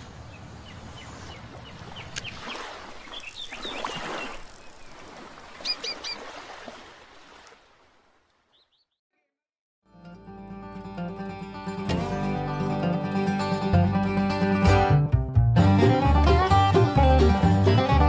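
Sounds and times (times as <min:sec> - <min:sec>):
small birds chirping: 0:00.0 - 0:06.3, 0:08.5 - 0:09.0.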